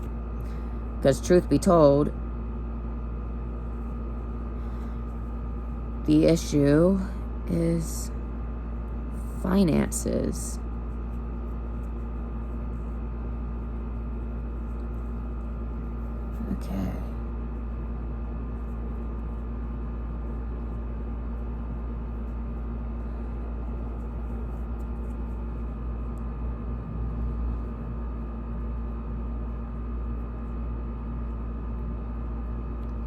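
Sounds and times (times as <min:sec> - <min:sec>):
constant hum: 0:00.0 - 0:33.0
steady low drone: 0:22.9 - 0:30.2.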